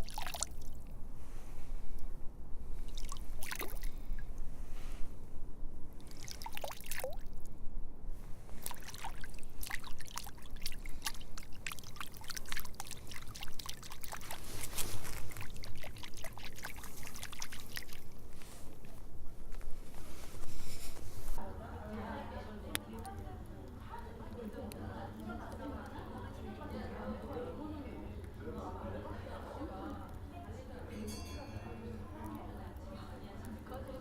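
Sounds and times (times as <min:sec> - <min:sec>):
bubbling plinks: 0:00.0 - 0:00.8, 0:06.0 - 0:07.3, 0:08.6 - 0:14.4, 0:15.4 - 0:18.0
water dripping: 0:00.0 - 0:00.9, 0:02.8 - 0:04.4, 0:06.0 - 0:07.5, 0:08.6 - 0:18.3
water trickling and splashing: 0:00.0 - 0:00.9, 0:02.8 - 0:04.3, 0:06.0 - 0:07.5, 0:08.5 - 0:18.7.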